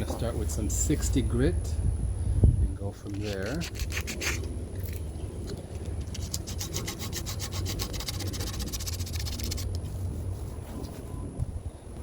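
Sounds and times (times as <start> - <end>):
sandpaper rubbing on metal tube: 3.1 - 4.5, 6.1 - 10.6.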